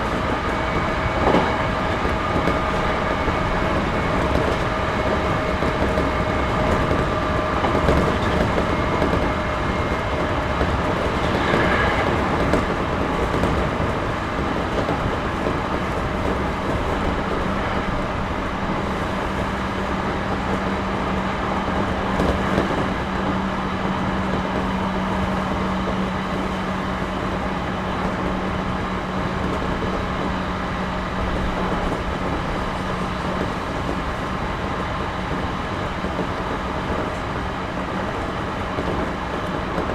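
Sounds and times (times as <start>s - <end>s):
train rolling on rails: 0.0s - 39.9s.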